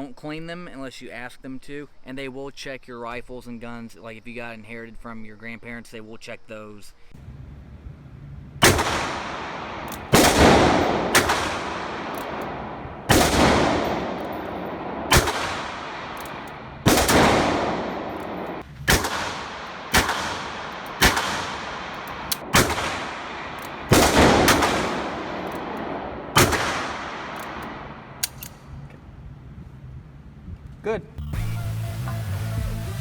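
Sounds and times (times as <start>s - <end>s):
revolver shots echoing: 8.6s - 28.4s.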